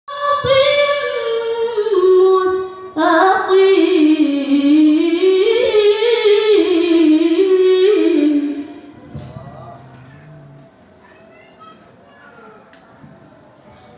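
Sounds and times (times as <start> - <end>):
woman reciting melodically: 0.1 - 9.0.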